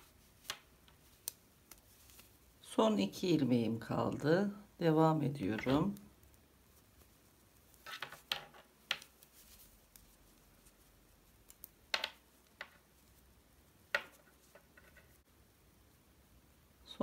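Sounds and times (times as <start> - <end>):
knitting needles clicking: 0.0 - 2.4, 5.4 - 13.2, 13.8 - 15.2.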